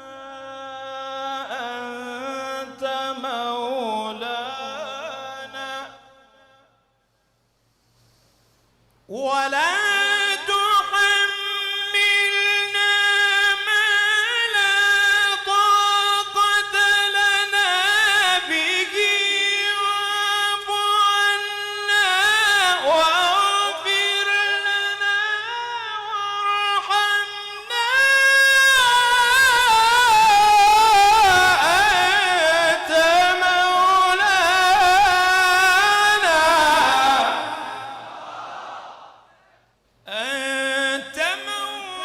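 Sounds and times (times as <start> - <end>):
person reciting melodically: 0.0 - 6.2, 9.1 - 38.1, 40.0 - 42.0.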